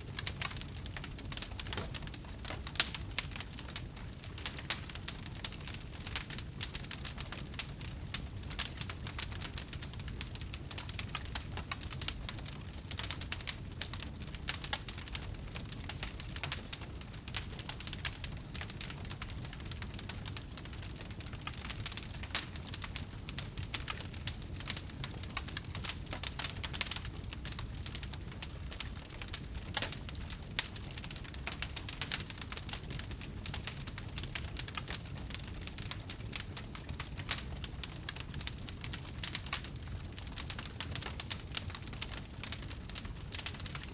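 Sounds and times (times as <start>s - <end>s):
burning wood crackling: 0.0s - 43.9s
flames rumbling: 0.0s - 43.9s.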